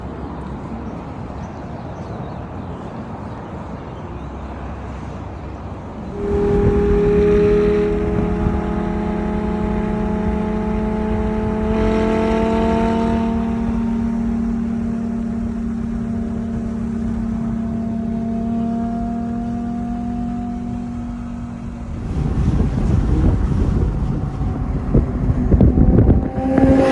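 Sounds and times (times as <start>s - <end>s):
sports car engine revving: 6.0s - 26.9s.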